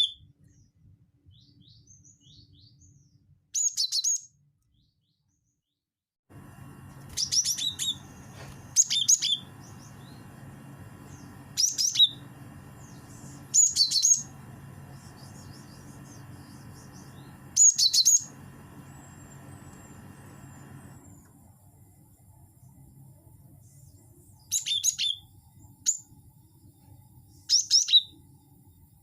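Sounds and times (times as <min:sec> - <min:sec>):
bird chirping: 0:00.0 - 0:05.8, 0:06.7 - 0:21.2, 0:23.6 - 0:26.1
steady low hum: 0:06.3 - 0:24.4.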